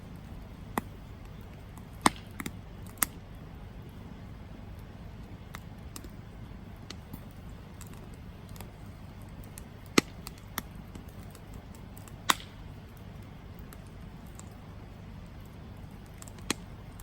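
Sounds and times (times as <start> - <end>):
campfire crackling: 0.0 - 17.0
loud sharp fire pops: 0.7 - 3.2, 9.4 - 14.6.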